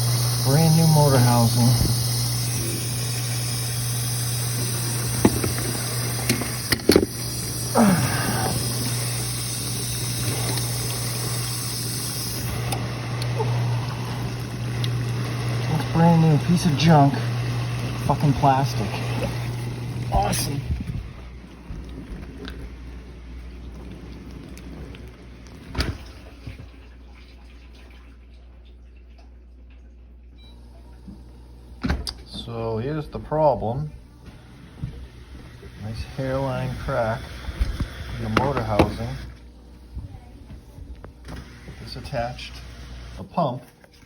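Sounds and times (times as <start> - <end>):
water rushing: 0.0 - 21.4
pump motor humming: 0.0 - 27.5, 30.6 - 40.3, 41.0 - 44.0.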